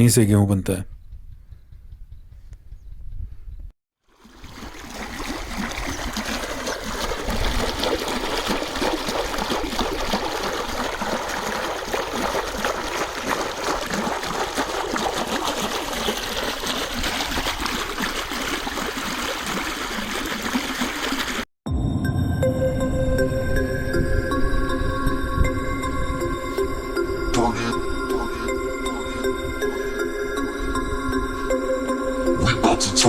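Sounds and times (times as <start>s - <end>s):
water flowing and splashing: 4.0s - 21.5s, 27.7s - 31.6s.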